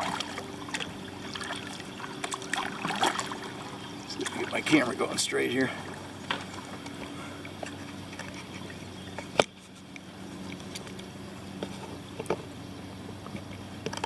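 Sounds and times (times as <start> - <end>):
paddle splashing water: 0.0 - 10.8
steady low hum: 0.0 - 14.0.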